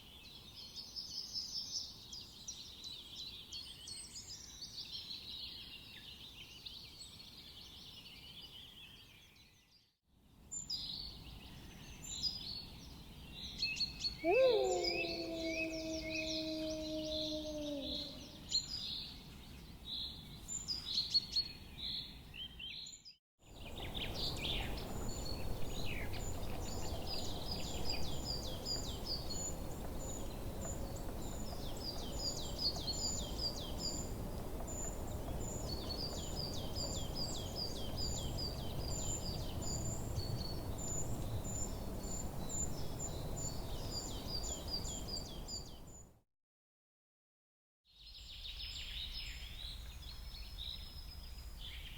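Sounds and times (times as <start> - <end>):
birds singing and chirping: 13.8 - 18.8
outdoor background hiss: 23.5 - 46.0.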